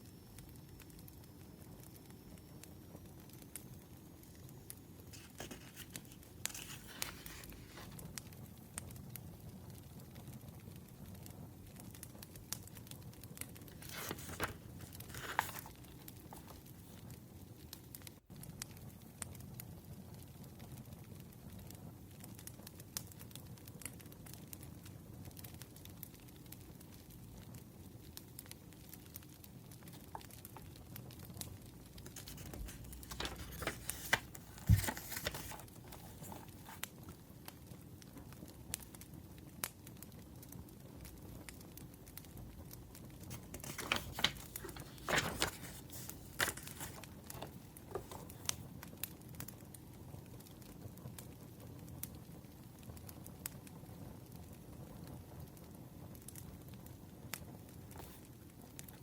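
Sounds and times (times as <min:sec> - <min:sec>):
paper rustling: 0:05.1 - 0:08.1, 0:13.7 - 0:17.2, 0:32.0 - 0:36.9, 0:43.3 - 0:48.7
wood fire crackling: 0:25.3 - 0:59.0.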